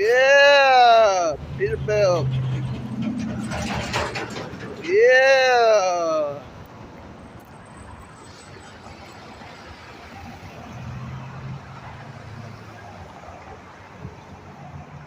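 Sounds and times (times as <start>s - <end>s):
truck diesel engine droning: 0.0s - 6.4s
road and tyre noise: 0.0s - 15.0s.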